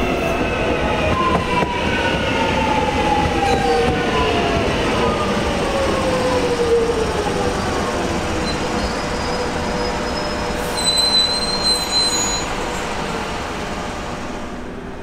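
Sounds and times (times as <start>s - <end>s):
high-pitched wheel squeals: 8.4s - 12.8s.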